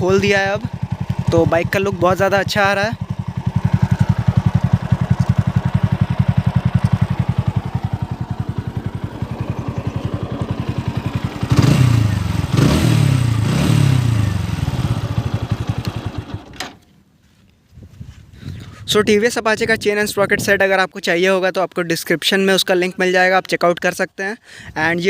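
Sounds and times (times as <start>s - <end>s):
motorcycle engine idling: 0.0s - 16.6s
motorcycle engine revving: 0.0s - 16.7s.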